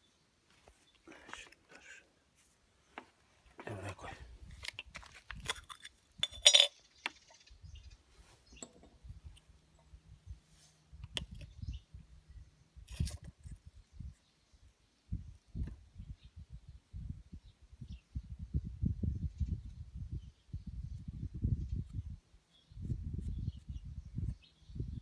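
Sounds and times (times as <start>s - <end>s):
metal tools clinking: 5.4s - 6.8s.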